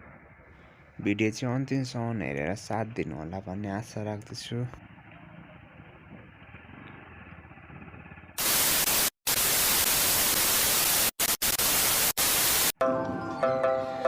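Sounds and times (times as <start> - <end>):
loud white noise static: 8.4 - 12.8.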